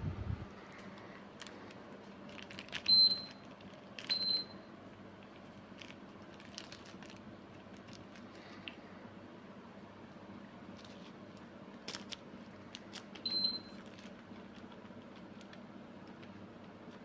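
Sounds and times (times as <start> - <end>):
steady background hum: 0.0 - 17.0
air conditioner short high beeps: 2.8 - 3.5, 4.1 - 4.8, 13.2 - 13.8.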